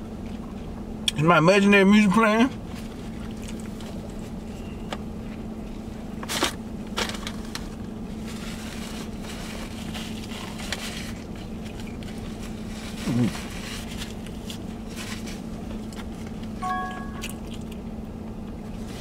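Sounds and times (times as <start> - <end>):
low car cabin hum: 0.0 - 19.0
person chewing food: 3.2 - 4.2, 15.7 - 17.9.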